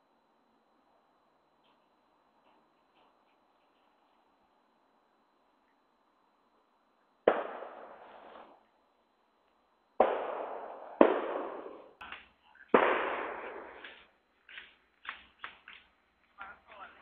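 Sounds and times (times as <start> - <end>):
loud sharp bangs: 7.3 - 8.6, 10.0 - 12.0, 12.7 - 14.0
small pops: 12.0 - 13.1, 13.7 - 16.4.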